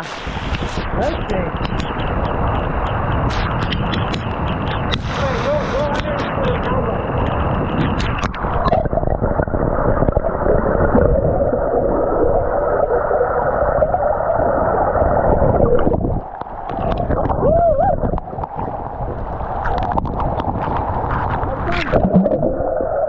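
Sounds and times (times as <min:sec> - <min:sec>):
heavy rain pouring: 0:04.4 - 0:10.2
rising and falling whoop tone: 0:17.3 - 0:18.1.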